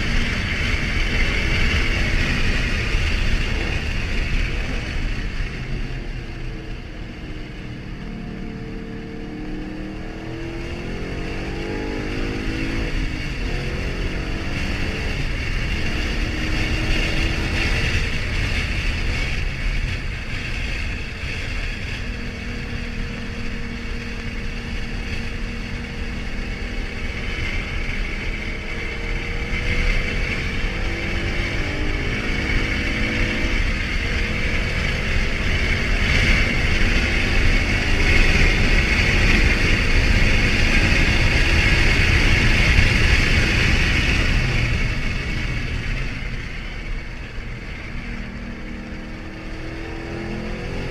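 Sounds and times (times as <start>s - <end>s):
car engine running under load: 0.0s - 50.9s.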